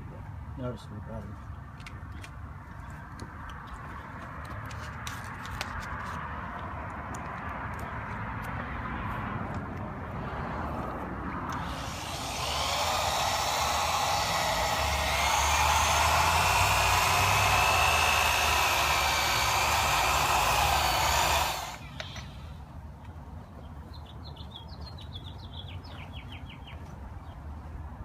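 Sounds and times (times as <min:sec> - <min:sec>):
power drill whine: 0:11.5 - 0:22.4.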